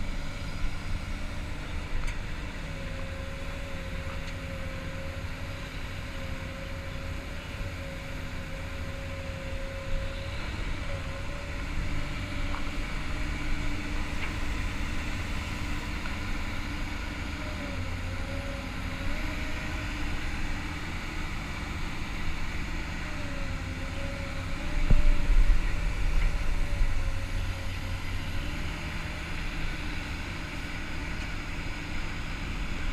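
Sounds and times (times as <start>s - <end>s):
excavator diesel engine whine: 0.0s - 32.9s
low rumble: 24.4s - 28.4s.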